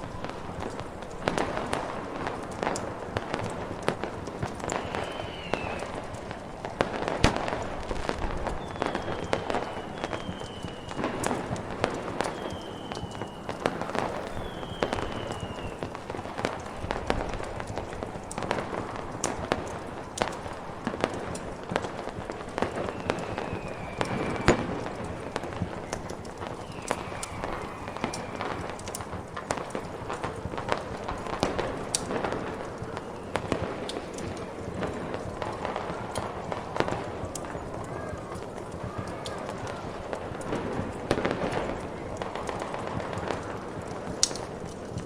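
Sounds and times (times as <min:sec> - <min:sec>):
distant fireworks: 0:00.0 - 0:45.0
wood fire crackling: 0:00.0 - 0:45.0
faint falling whistles: 0:04.6 - 0:06.6, 0:08.5 - 0:16.9, 0:22.5 - 0:29.0, 0:32.8 - 0:34.1
snowstorm wind hiss: 0:13.3 - 0:22.6.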